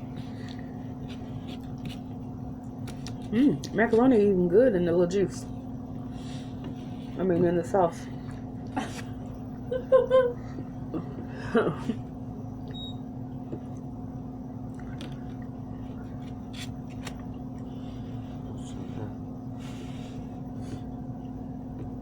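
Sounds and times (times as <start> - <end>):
steady low hum: 0.0 - 22.0
chewing and biting clicks: 0.4 - 3.8.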